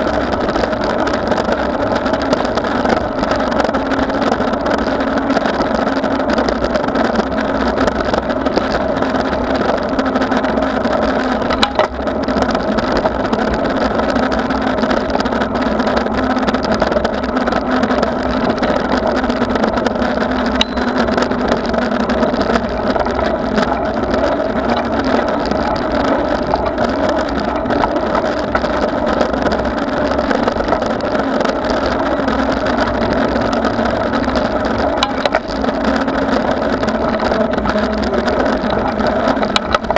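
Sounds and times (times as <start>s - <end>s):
bicycle tyres rolling: 0.0s - 39.9s
wind: 0.0s - 39.9s
low drone: 8.8s - 39.9s.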